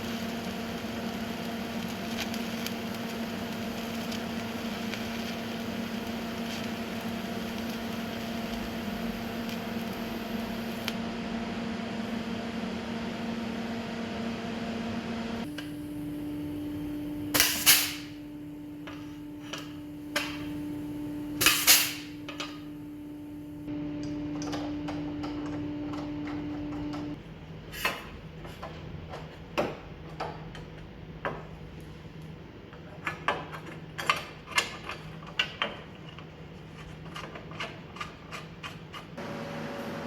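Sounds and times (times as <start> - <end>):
steady hum: 3.0 - 27.2.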